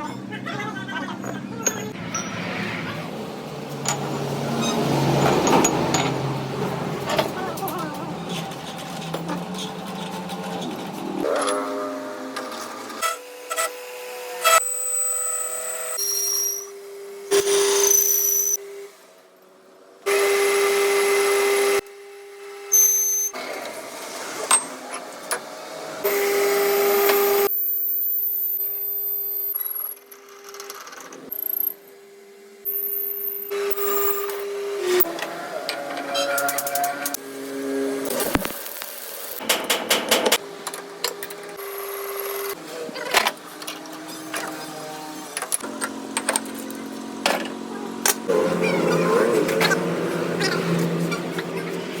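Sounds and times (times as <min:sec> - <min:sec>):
machine whining: 0:44.7 - 0:52.0.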